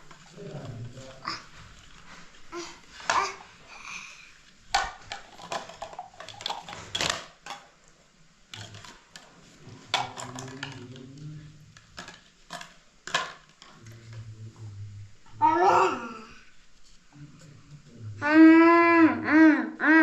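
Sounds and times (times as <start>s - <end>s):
hard objects clattering: 0.0s - 3.5s, 4.7s - 7.8s, 8.5s - 14.3s.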